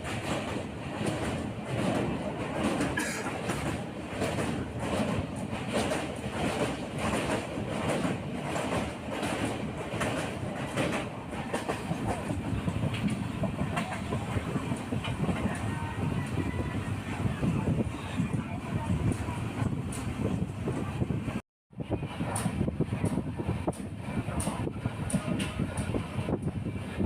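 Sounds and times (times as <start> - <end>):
wheels clacking over rail joints: 0.0 - 16.4
train rumbling: 0.0 - 27.0.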